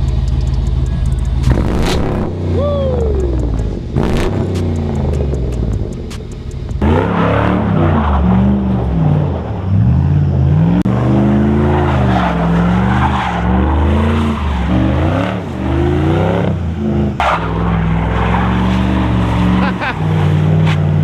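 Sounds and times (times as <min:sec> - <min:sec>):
engine revving: 0:00.0 - 0:21.0.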